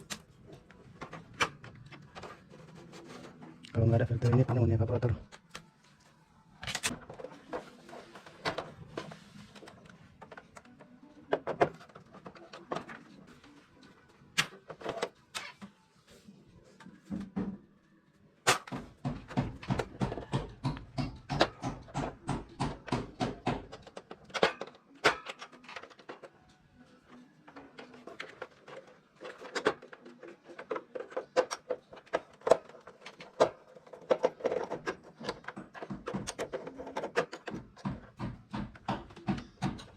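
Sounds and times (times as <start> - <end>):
hands clicking and knocking on plastic: 18.5 - 26.3, 27.6 - 39.9.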